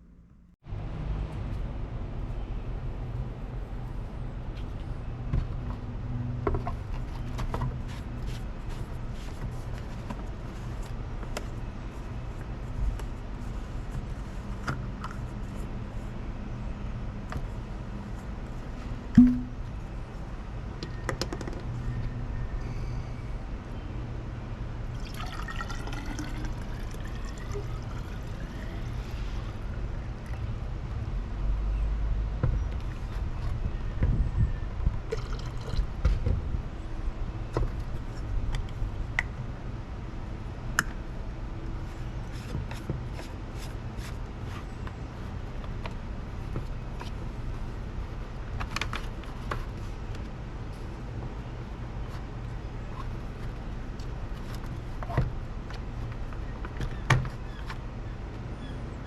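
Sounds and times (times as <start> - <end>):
water pouring into vessel: 25.0 - 28.6.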